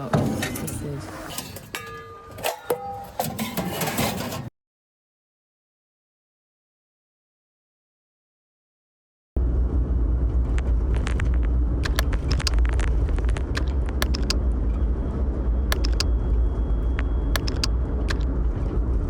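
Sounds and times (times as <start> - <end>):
wind rumble on microphone: 9.4 - 19.0
footsteps and gear clicks: 10.5 - 14.4, 15.7 - 16.1, 16.9 - 18.3.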